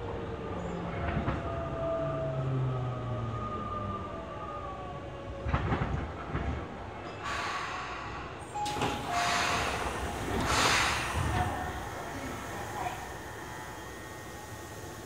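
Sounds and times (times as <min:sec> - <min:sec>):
train air hiss: 0:07.1 - 0:15.0.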